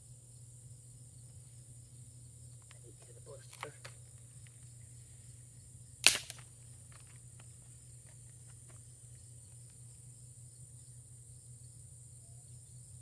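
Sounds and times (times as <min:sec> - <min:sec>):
crickets chirring: 0:00.0 - 0:13.0
fire striker rasping strike: 0:06.0 - 0:06.5.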